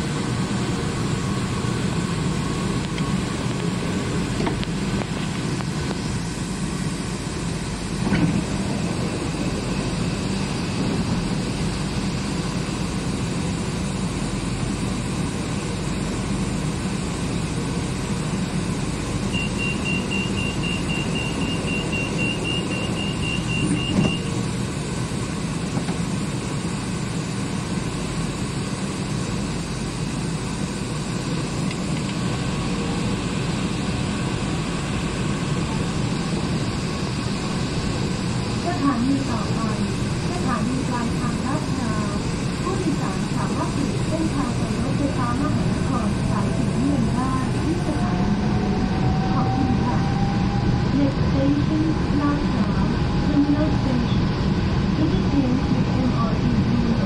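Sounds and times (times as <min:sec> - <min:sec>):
train carriage rumble and hum: 0:00.0 - 0:57.0
train doors thumping shut: 0:08.0 - 0:08.6, 0:23.6 - 0:24.3.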